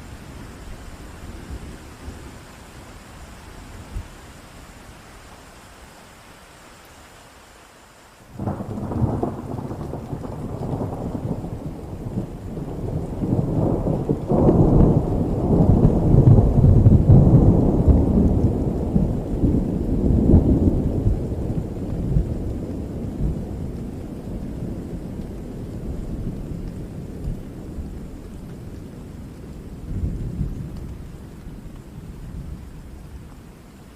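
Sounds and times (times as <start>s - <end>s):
steady rain: 0.0s - 33.9s
thunder rolling: 8.4s - 28.2s.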